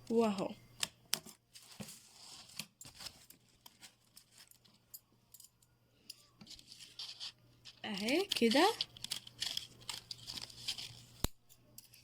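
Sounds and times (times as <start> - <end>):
paper and cellophane rustling: 1.5 - 4.8, 6.4 - 11.2.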